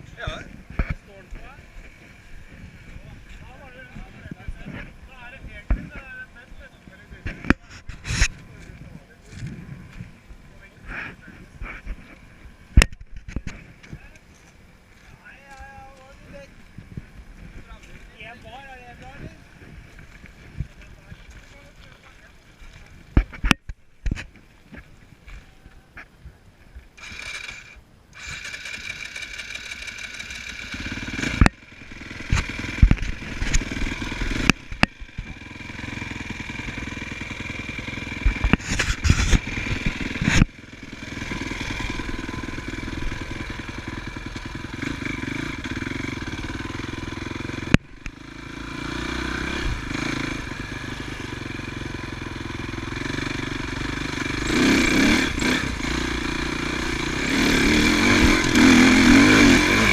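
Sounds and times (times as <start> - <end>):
motorcycle engine running: 0.0 - 26.0, 26.8 - 59.9
sharp knocks and crackles: 23.1 - 25.0, 31.2 - 35.4, 38.1 - 40.6.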